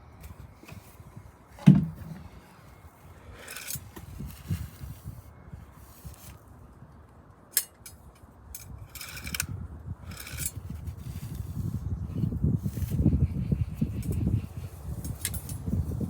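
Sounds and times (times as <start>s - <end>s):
handling rubbing and scraping: 0.2s - 5.2s, 10.1s - 14.3s.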